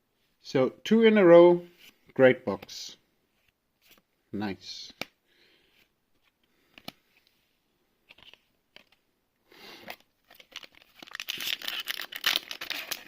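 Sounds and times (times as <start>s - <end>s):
foil wrapper crinkling: 10.3s - 13.0s.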